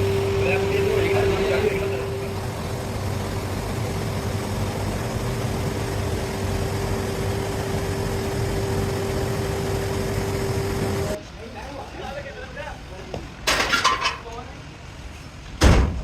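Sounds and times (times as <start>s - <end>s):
machine humming: 0.0s - 11.2s.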